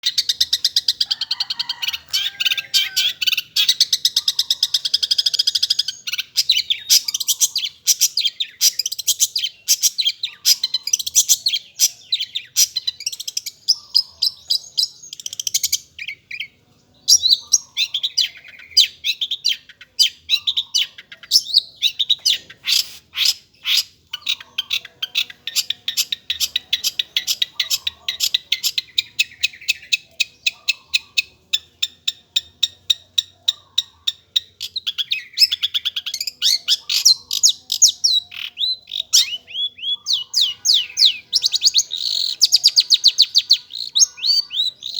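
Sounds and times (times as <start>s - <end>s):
shrike singing: 34.4s - 44.9s.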